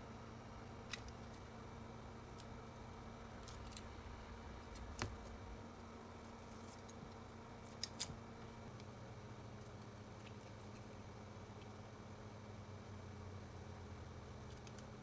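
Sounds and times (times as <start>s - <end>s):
steady low hum: 0.0s - 15.0s
faint clicks and snips: 6.5s - 8.2s, 14.5s - 15.0s.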